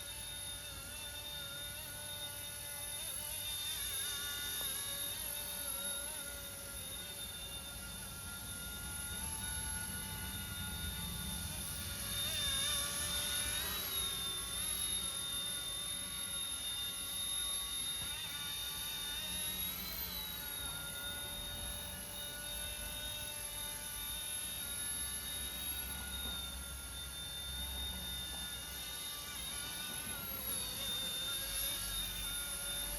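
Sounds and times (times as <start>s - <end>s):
toy helicopter motor whine: 0.0s - 32.9s.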